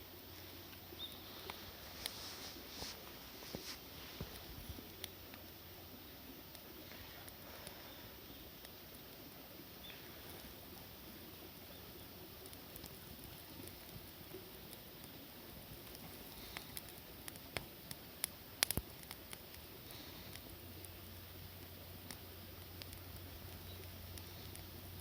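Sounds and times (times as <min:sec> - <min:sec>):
campfire crackling: 0:00.0 - 0:25.0
fire popping and snapping: 0:00.0 - 0:25.0.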